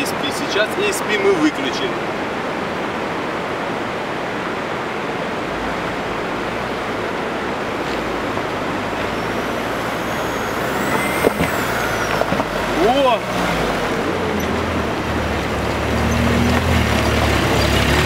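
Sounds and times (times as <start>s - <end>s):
steady rushing noise: 0.0s - 17.5s
car engine under load: 5.3s - 18.0s.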